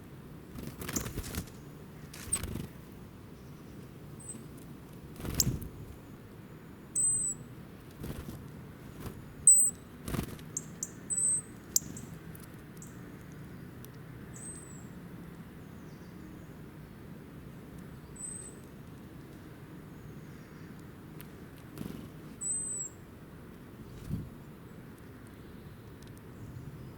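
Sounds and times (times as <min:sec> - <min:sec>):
high-pitched bird chirps: 0:07.0 - 0:07.4, 0:09.5 - 0:09.8, 0:10.6 - 0:12.1.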